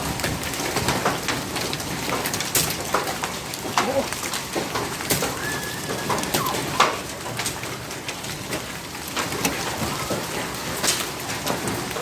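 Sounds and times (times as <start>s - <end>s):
hailstones striking: 0.0s - 12.0s
rain pattering: 0.0s - 12.0s.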